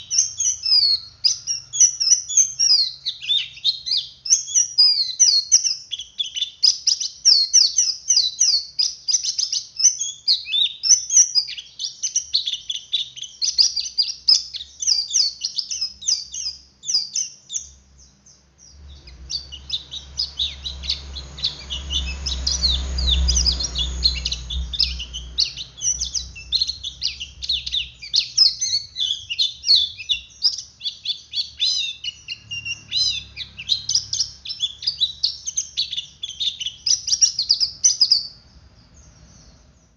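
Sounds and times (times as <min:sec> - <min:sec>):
bird twittering song: 0:00.0 - 0:39.9
low rumble: 0:18.8 - 0:28.1.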